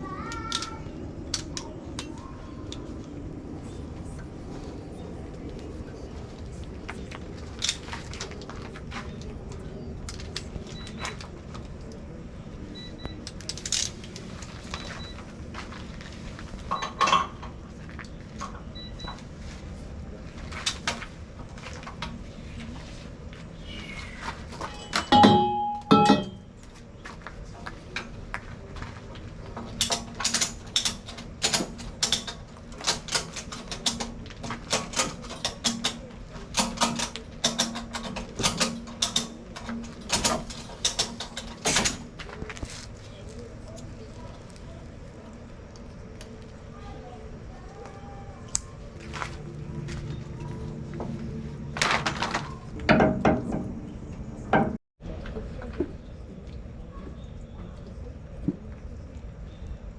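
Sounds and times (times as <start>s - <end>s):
hand tools clanking and clicking: 16.7s - 18.6s, 24.5s - 26.4s, 29.6s - 42.8s
metallic clang: 24.7s - 26.5s.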